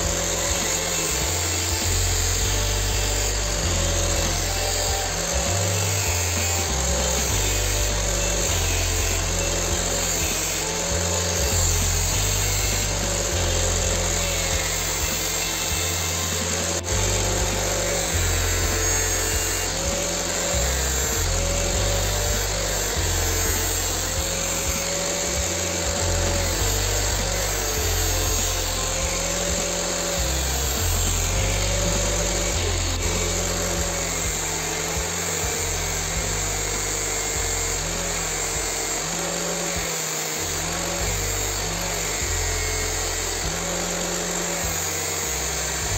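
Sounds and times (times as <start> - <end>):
background music with bass line: 0.0 - 45.9.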